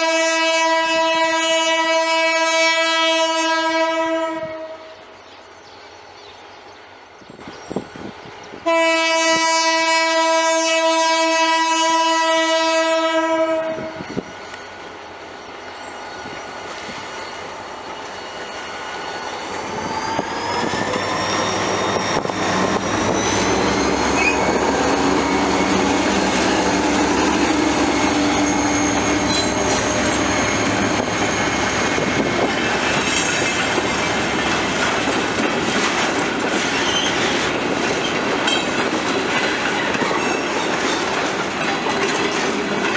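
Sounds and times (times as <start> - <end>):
locomotive horn blast: 0.0 - 5.0, 8.6 - 14.0, 22.5 - 32.4
locomotive engine whine: 7.4 - 42.9
train wheels clicking on rail joints: 13.8 - 42.9.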